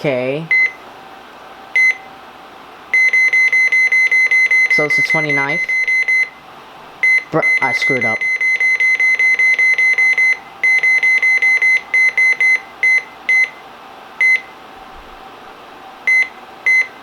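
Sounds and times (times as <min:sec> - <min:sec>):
short high beeps: 0:03.0 - 0:06.3.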